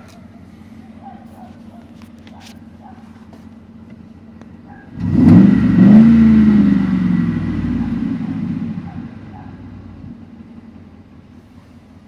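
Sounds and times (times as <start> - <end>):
car engine revving from idle: 4.9 - 11.8.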